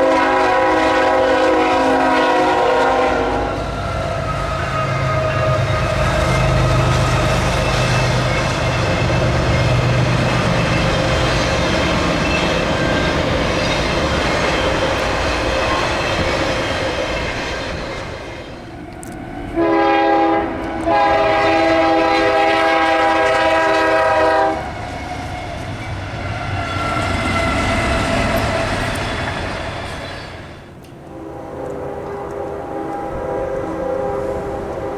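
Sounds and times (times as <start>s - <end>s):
locomotive air horn blasts: 0.0s - 6.0s, 19.6s - 24.7s, 31.1s - 34.9s
freight train rumbling: 0.0s - 34.9s.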